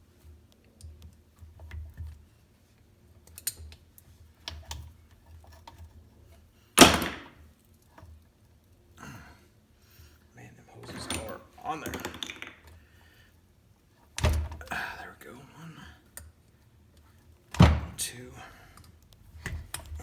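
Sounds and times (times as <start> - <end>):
hands and tools clicking and tapping: 0.3 - 2.3, 3.2 - 6.0, 10.9 - 12.8.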